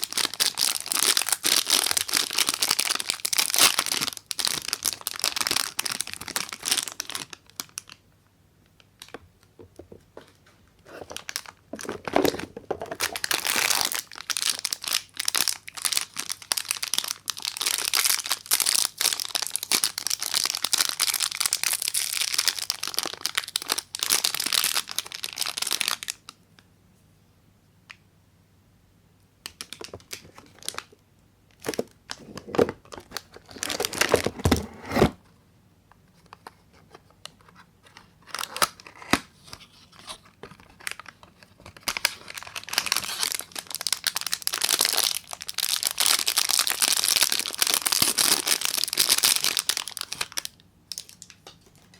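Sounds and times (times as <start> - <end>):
wrapper crinkling and tearing: 0.0 - 8.0, 10.9 - 26.3, 29.5 - 31.0, 31.6 - 34.6, 38.2 - 51.8.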